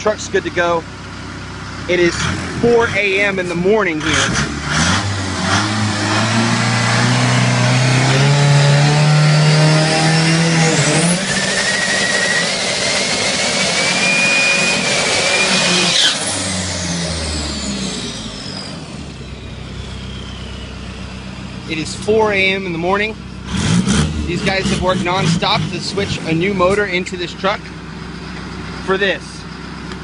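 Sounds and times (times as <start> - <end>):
race engine revving: 1.9 - 20.5, 21.4 - 27.7
high whine: 5.2 - 27.7.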